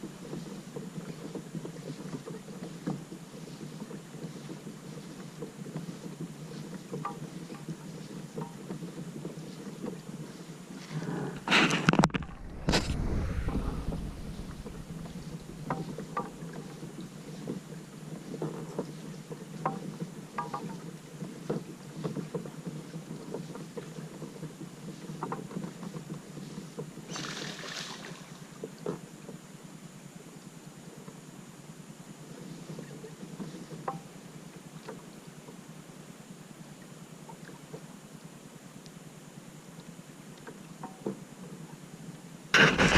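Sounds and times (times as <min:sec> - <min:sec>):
paddle splashing and dripping: 0:00.0 - 0:10.9, 0:12.1 - 0:29.0
hissing rush: 0:11.5 - 0:15.7
steady wash of water: 0:11.5 - 0:16.7, 0:27.1 - 0:28.7
loud water rush and rumble: 0:12.2 - 0:15.7.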